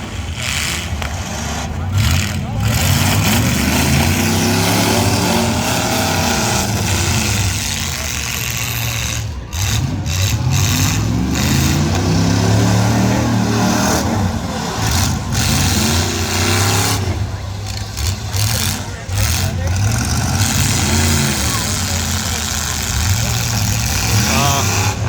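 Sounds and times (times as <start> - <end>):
car engines revving hard: 0.0 - 25.0.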